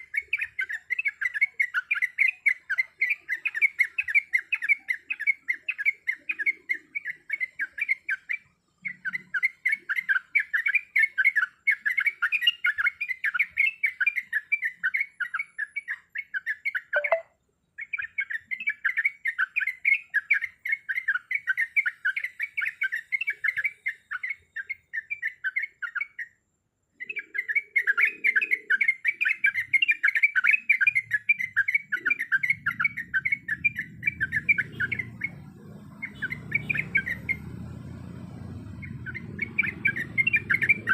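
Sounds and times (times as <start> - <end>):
bulbuls chattering and singing: 27.0 - 40.9.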